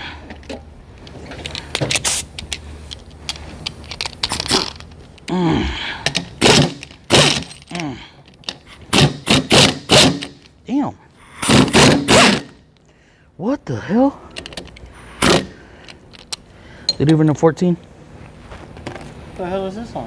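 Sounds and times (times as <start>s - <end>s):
impact wrench hammering: 6.0s - 7.7s, 8.9s - 10.5s, 11.4s - 12.6s, 15.2s - 15.6s.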